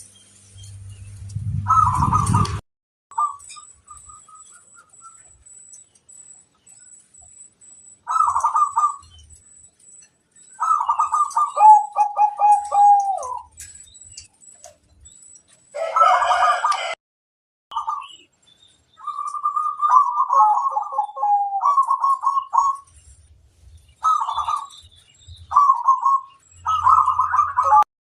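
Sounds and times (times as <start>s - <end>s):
doves cooing: 1.6s - 2.6s, 8.0s - 9.4s, 10.5s - 14.9s, 15.6s - 17.0s, 19.0s - 23.0s, 24.0s - 27.9s.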